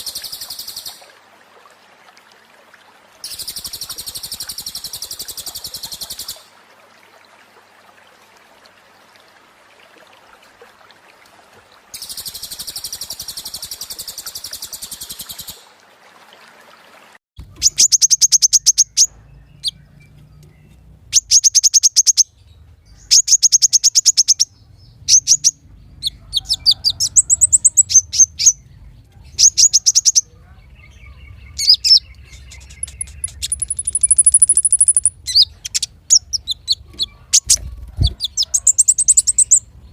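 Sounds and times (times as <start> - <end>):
songbird trilling: 17.5 - 22.3, 23.0 - 28.6, 29.3 - 39.7.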